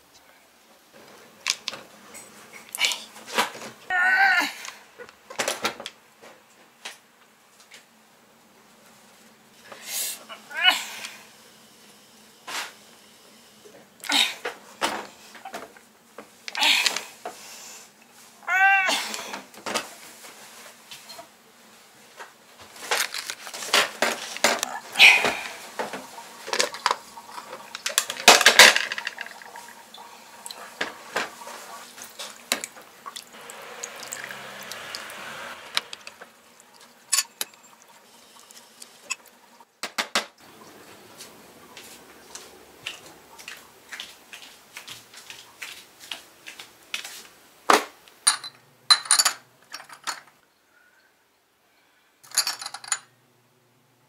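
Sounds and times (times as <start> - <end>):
dishes and cutlery clinking: 37.1 - 37.7, 48.3 - 50.3.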